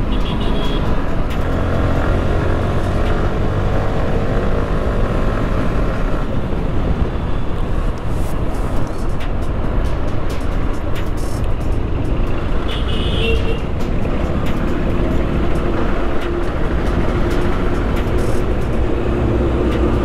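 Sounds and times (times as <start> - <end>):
motorcycle engine accelerating: 0.0 - 7.2
wind rushing over microphone: 0.9 - 12.7.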